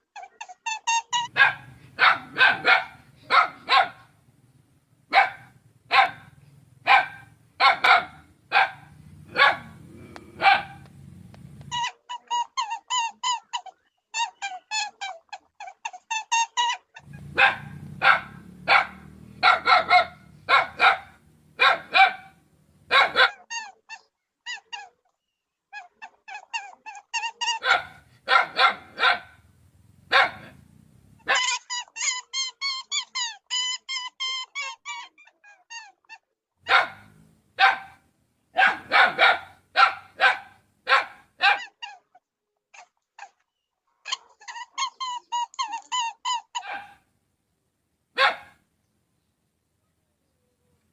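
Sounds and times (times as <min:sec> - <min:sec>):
dog barking: 0:01.2 - 0:04.2, 0:05.1 - 0:10.9, 0:17.0 - 0:24.9, 0:25.7 - 0:29.4, 0:30.1 - 0:31.6, 0:35.8 - 0:42.1, 0:44.0 - 0:47.1, 0:48.1 - 0:48.6.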